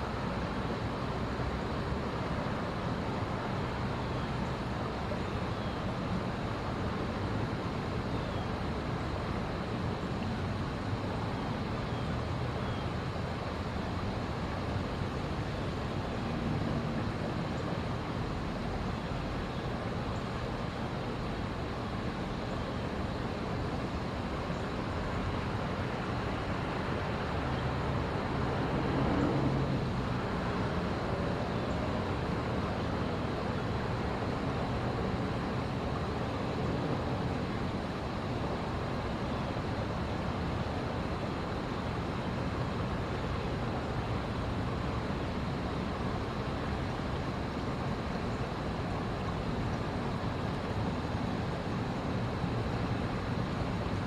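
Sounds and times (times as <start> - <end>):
road traffic hum: 13.8 - 19.3, 24.5 - 54.0.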